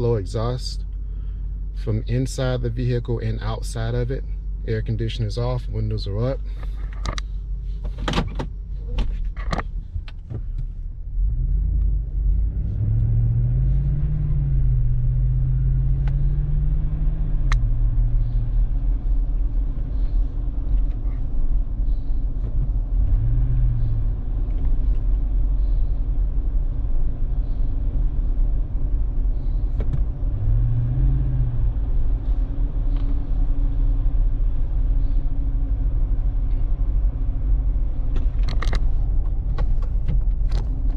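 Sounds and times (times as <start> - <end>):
engine rumble revving: 8.6 - 40.9.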